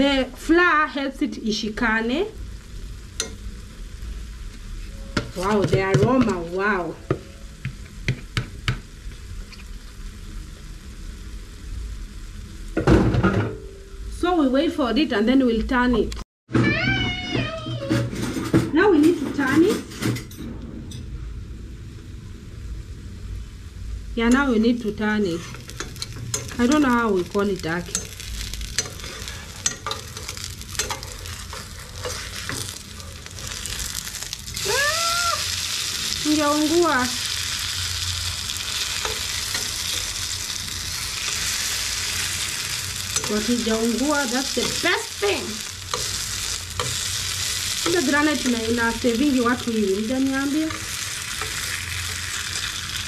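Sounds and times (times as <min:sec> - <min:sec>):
fritter sizzling in oil: 0:00.0 - 0:12.9, 0:22.8 - 0:53.0
metal spoons scraping pan: 0:25.3 - 0:34.0, 0:43.0 - 0:45.0, 0:45.9 - 0:52.8.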